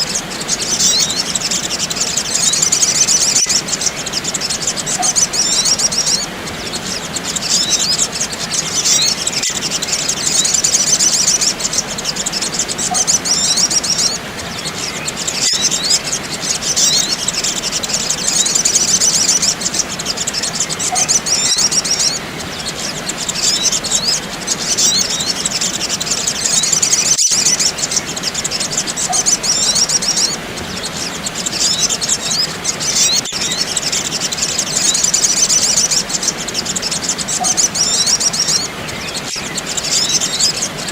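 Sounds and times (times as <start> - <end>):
small birds twittering: 0.0 - 40.9.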